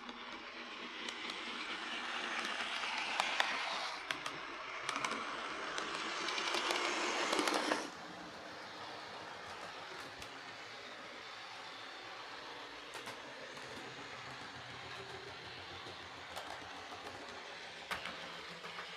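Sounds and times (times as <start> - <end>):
model train motor whir: 0.0 - 18.9
track clicks: 6.5 - 18.9.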